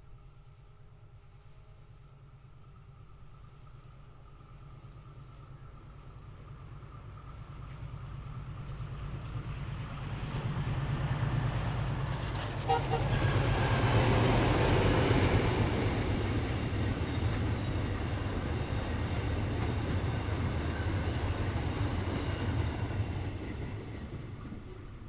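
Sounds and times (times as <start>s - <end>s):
freight train wheels clicking: 6.2s - 25.0s.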